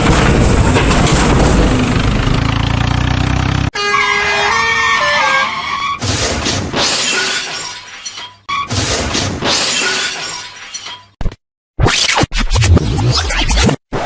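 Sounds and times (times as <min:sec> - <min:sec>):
glass shattering crashes: 0:00.0 - 0:02.4.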